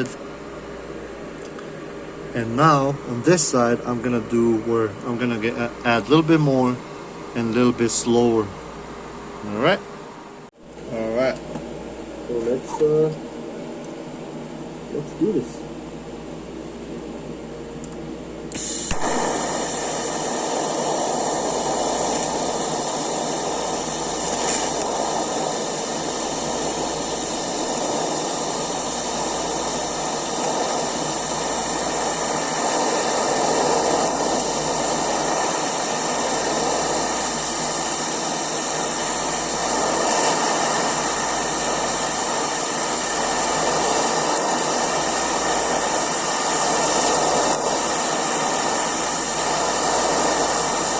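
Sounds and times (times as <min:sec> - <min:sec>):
welding arc hissing and buzzing: 0:18.5 - 0:50.9.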